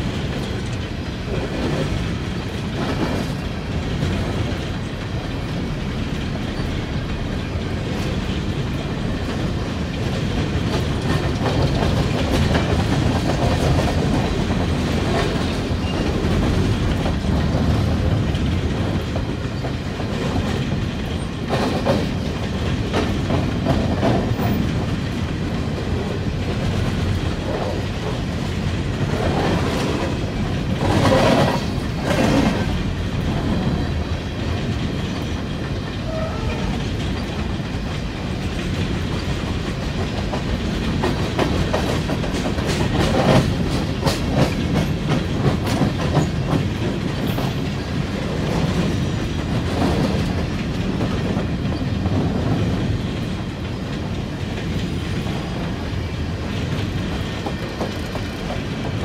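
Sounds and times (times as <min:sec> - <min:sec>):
freight train rumbling past: 0:00.0 - 0:59.0
wheels clattering over rail joints: 0:00.0 - 0:59.0.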